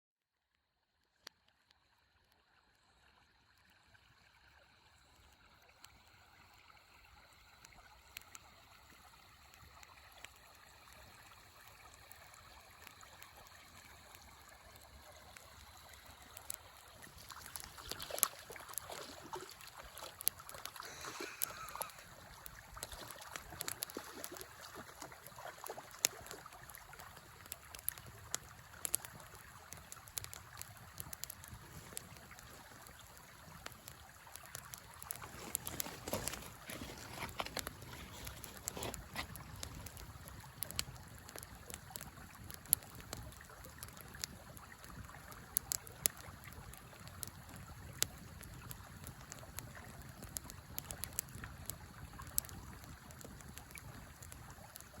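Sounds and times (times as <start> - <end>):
river flowing: 5.9 - 41.5
campfire crackling: 6.7 - 55.0.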